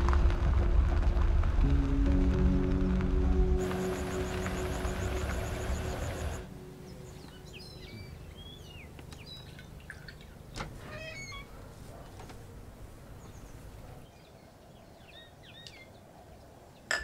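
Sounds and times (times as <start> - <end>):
music: 0.0 - 8.7
birds chirping and singing: 3.6 - 9.8.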